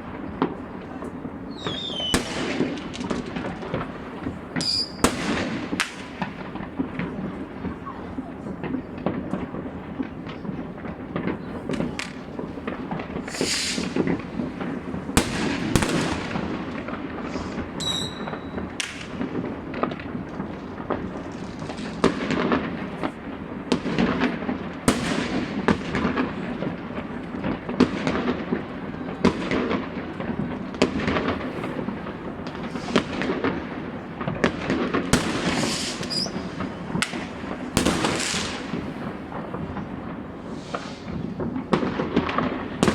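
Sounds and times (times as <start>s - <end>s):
firework bangs: 0.0s - 42.9s
rumble of distant fireworks: 0.0s - 42.9s
firework whistle: 1.4s - 2.9s, 4.5s - 6.0s, 13.2s - 14.2s, 17.2s - 19.2s, 35.1s - 38.8s, 40.4s - 41.4s.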